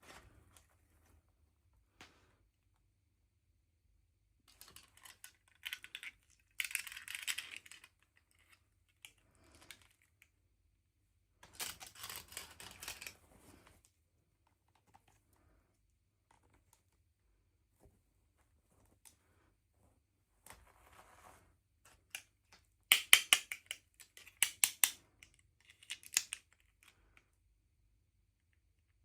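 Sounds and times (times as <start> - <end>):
small plastic clicks: 4.5 - 10.3, 22.1 - 27.3.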